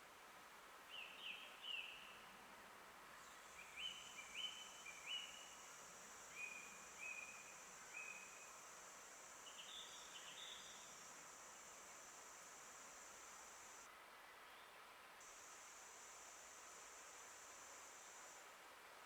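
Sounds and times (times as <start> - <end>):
high-pitched hiss: 3.2 - 13.9, 15.2 - 19.0.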